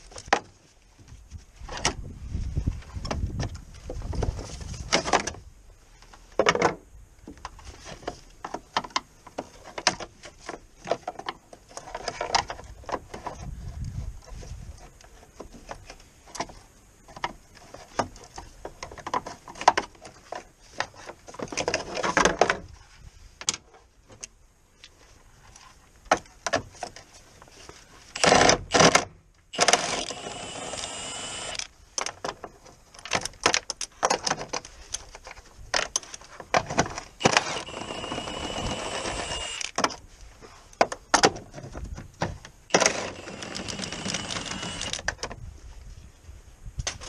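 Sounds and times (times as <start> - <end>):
power tool whirring: 28.2 - 28.9, 29.5 - 31.7, 37.2 - 39.8, 42.7 - 45.0.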